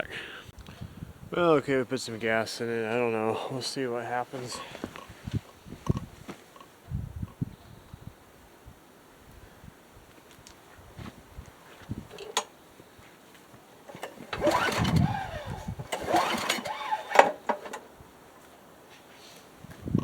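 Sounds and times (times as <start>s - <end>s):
lawn mower pull-start cranking: 13.9s - 17.9s.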